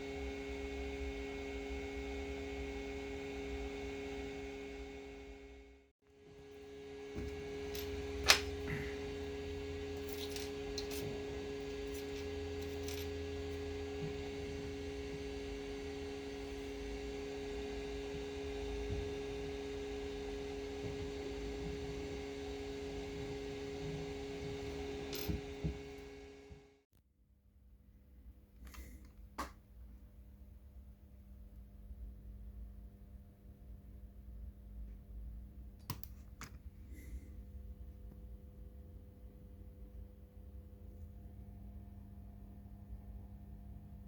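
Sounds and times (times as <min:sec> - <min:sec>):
two-tone electrical hum: 0:00.0 - 0:26.8.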